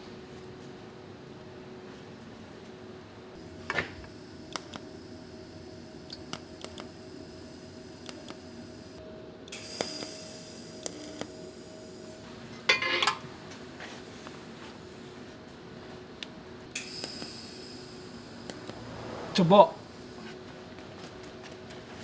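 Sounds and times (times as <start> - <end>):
workshop hum: 0.0 - 22.0
hiss: 9.6 - 11.3, 16.8 - 20.4.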